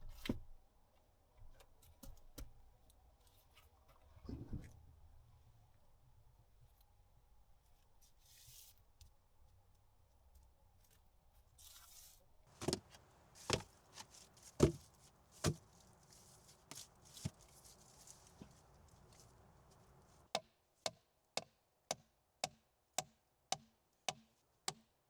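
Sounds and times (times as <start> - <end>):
short rustles: 12.5 - 20.3.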